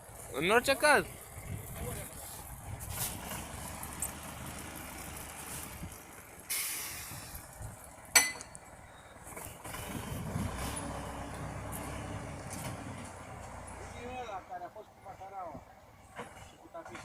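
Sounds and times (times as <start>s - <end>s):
tractor engine running: 0.0s - 15.0s
short hiss: 6.5s - 7.4s
sharp metallic clink: 8.1s - 8.5s.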